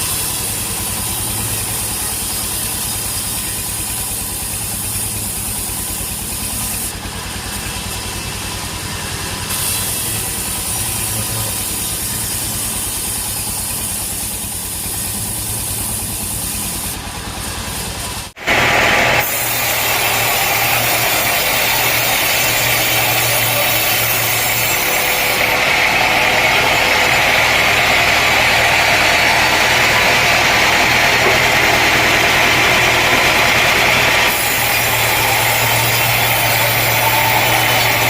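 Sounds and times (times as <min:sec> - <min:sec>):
sawmill machinery humming: 0:00.0 - 0:38.0
harsh high-pitched noise: 0:18.4 - 0:38.0.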